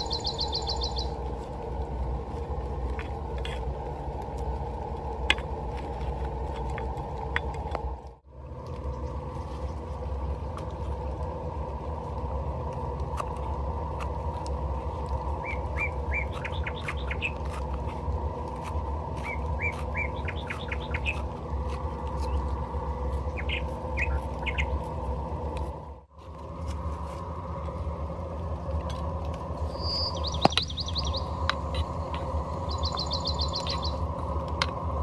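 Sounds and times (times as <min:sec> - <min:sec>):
small bird chirping: 0:00.0 - 0:01.2, 0:15.4 - 0:17.6, 0:19.2 - 0:21.2, 0:23.2 - 0:24.8, 0:29.6 - 0:34.1
steady low rumble: 0:00.0 - 0:35.0.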